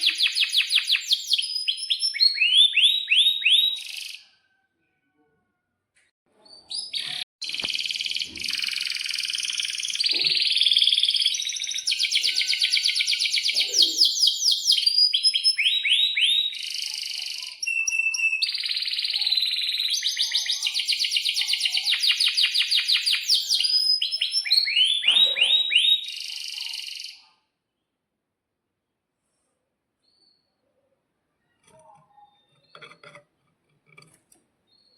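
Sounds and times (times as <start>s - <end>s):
canary singing trills: 0.0s - 4.4s, 6.5s - 27.4s.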